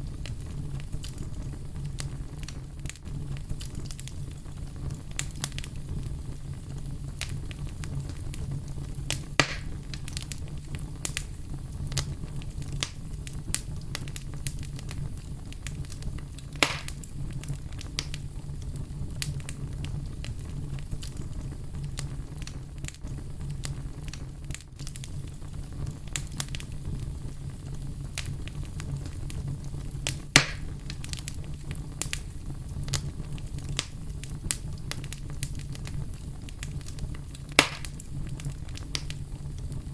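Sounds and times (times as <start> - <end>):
fire crackling: 0.0 - 39.9
loud sharp pops: 9.4 - 9.8, 16.6 - 17.0, 30.3 - 30.7, 37.5 - 38.0.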